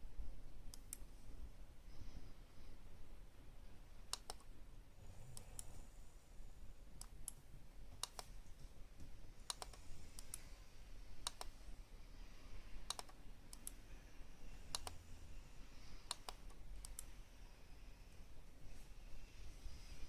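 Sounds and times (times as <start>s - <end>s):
sharp clicks: 4.1s - 4.5s, 8.0s - 8.3s, 9.5s - 10.4s, 11.2s - 11.6s, 12.9s - 13.8s, 14.7s - 15.0s, 16.1s - 17.1s.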